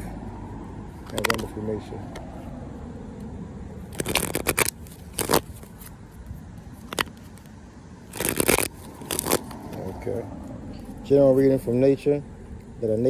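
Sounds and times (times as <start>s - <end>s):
playing cards being shuffled: 1.0s - 1.6s, 3.9s - 6.0s, 6.8s - 7.5s, 8.1s - 10.0s.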